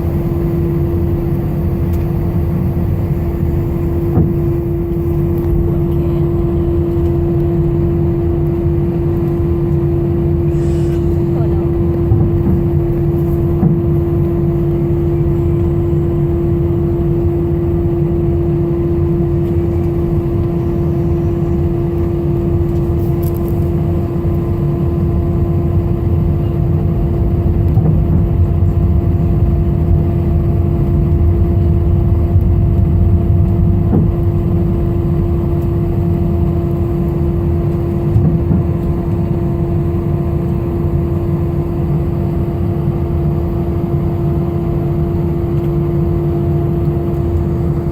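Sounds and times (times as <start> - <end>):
jet engines during takeoff: 0.0 - 47.9.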